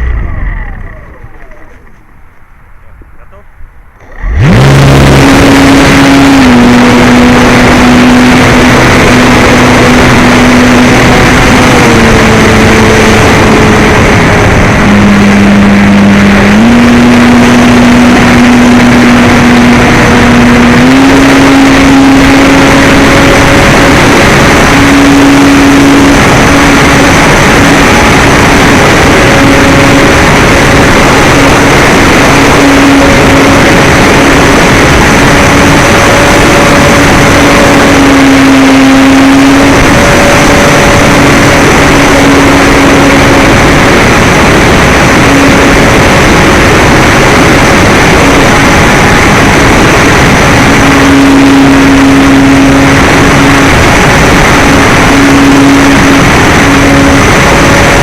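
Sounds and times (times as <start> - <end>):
wind rush on microphone: 3.6 - 58.0
model plane propeller buzzing: 4.0 - 58.0.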